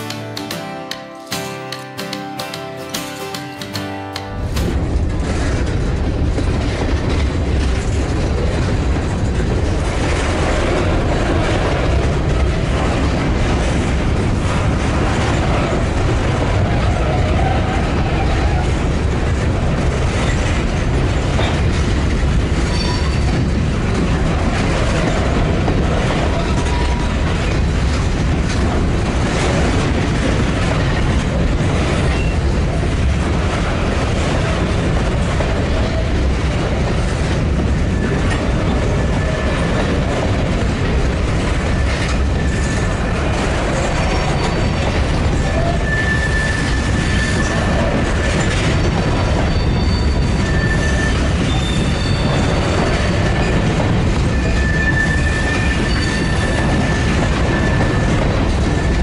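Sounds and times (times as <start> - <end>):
wheel clacks: 0.0 - 59.0
train wheels rumbling on rails: 2.0 - 59.0
faint thin wheel squeal: 45.4 - 52.5, 54.3 - 58.2.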